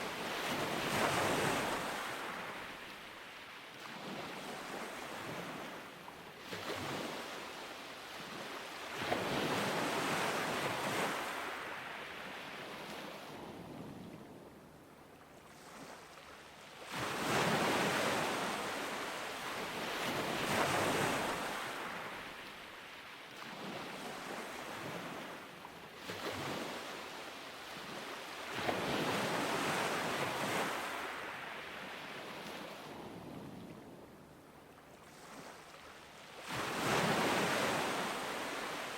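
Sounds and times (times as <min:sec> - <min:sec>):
ocean waves breaking: 0:00.0 - 0:05.8, 0:15.5 - 0:25.4, 0:26.0 - 0:33.3, 0:35.1 - 0:38.9.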